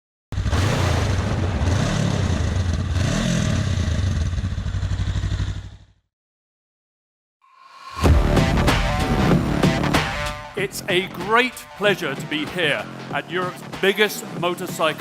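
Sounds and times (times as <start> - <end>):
motorcycle engine revving: 0.4 - 6.1.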